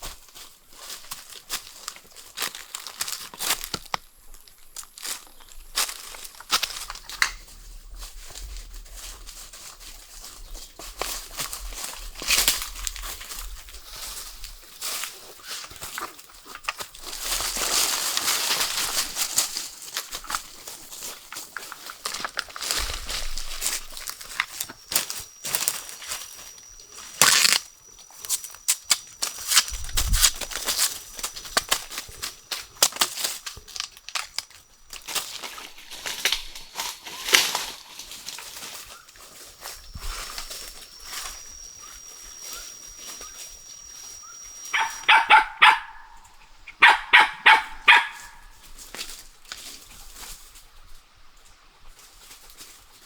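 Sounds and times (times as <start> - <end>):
rustling through forest litter: 0.0 - 53.0
small dog barking: 44.7 - 48.6.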